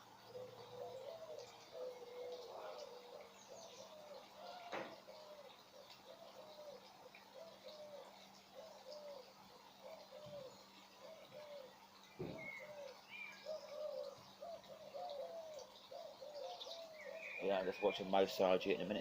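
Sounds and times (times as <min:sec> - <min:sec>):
small birds chirping: 0:00.0 - 0:19.0
pigeon cooing: 0:00.2 - 0:19.0
low thump: 0:12.2 - 0:12.5.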